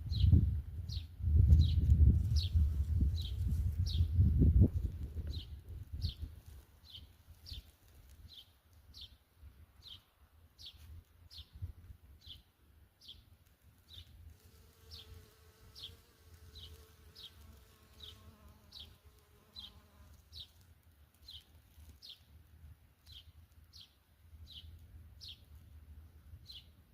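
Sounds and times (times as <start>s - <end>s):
small bird chirping: 14.8s - 22.3s.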